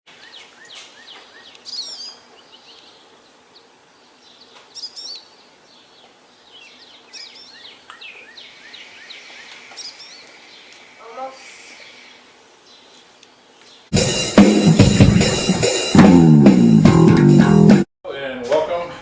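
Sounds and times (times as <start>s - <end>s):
songbirds chirping and singing: 0.1s - 13.9s.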